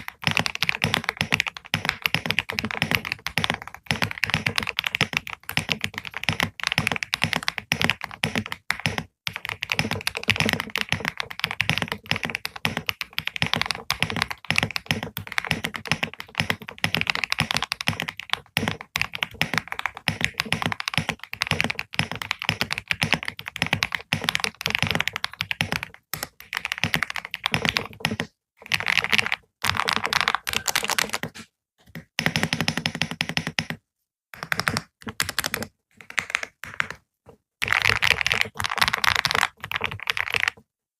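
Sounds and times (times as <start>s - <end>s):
keyboard typing: 0.0s - 40.7s.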